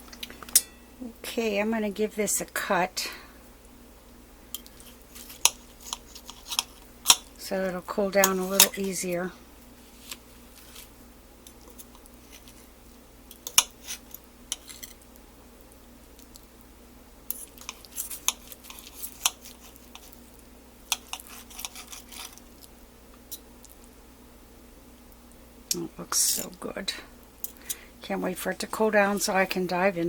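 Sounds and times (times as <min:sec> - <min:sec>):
cutlery clinking and scraping plate: 0:20.9 - 0:22.4.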